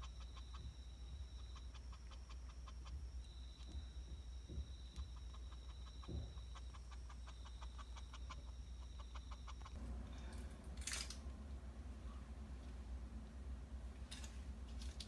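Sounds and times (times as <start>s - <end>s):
soft rhythmic clicking: 0.0s - 9.8s
faint high whine: 0.0s - 14.2s.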